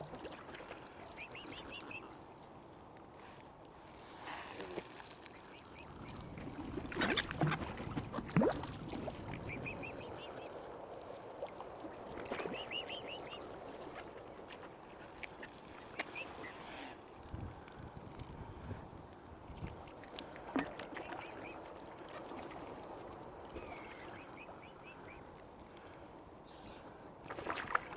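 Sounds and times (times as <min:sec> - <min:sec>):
waterfowl calling: 0:01.0 - 0:02.2, 0:09.4 - 0:10.6, 0:12.3 - 0:14.1, 0:21.0 - 0:21.6, 0:23.6 - 0:25.3.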